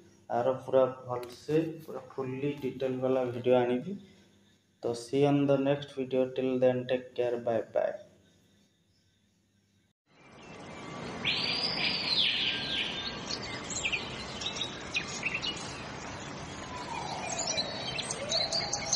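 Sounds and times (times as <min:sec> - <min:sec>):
steady background hiss: 0:00.0 - 0:08.9
birds chirping and calling: 0:10.5 - 0:18.9.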